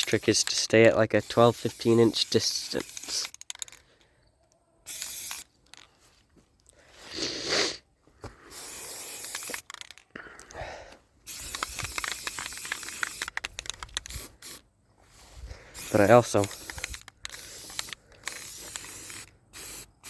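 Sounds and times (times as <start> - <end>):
spray-paint can hissing: 0.0 - 3.6, 4.9 - 5.5, 8.5 - 10.0, 11.2 - 14.6, 15.8 - 20.0.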